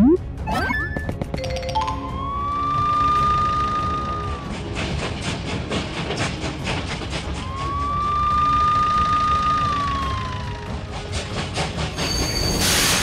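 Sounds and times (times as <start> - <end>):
police siren wailing: 2.0 - 4.5, 7.4 - 10.9.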